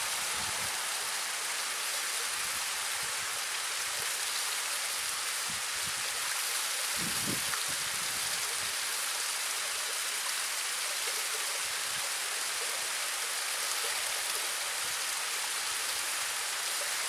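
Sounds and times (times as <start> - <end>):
waterfall splashing: 0.0 - 11.6.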